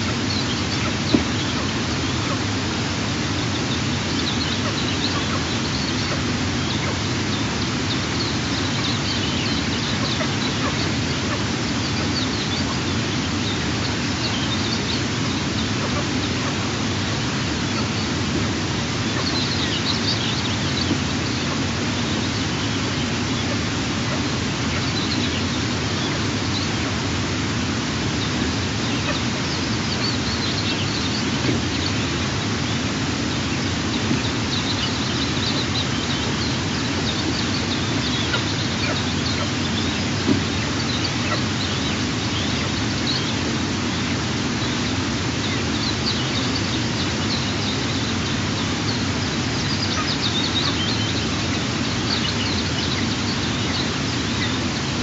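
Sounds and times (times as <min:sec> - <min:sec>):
steady outdoor hiss: 0:00.0 - 0:55.0
high-pitched bird chirps: 0:48.9 - 0:54.6.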